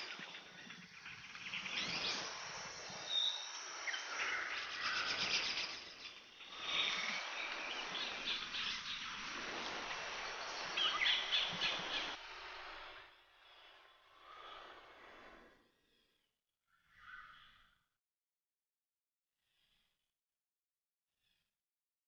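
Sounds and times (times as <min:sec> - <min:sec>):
steady outdoor hiss: 0:00.0 - 0:15.4.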